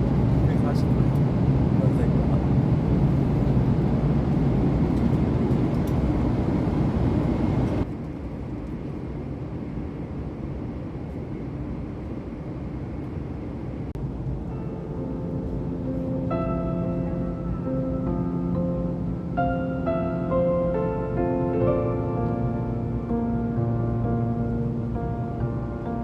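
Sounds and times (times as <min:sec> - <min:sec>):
vehicle cabin rumble: 0:00.0 - 0:09.1, 0:13.9 - 0:26.0.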